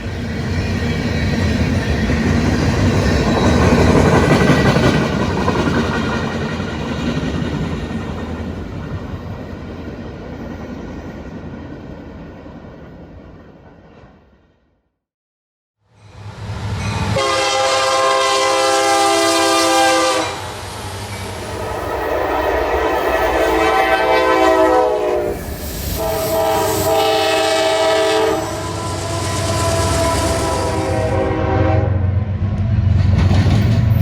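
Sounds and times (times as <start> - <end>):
locomotive and train rumble: 0.0 - 14.6, 15.9 - 34.0
locomotive air horn blasts: 17.2 - 20.5, 21.4 - 25.4, 26.0 - 32.2.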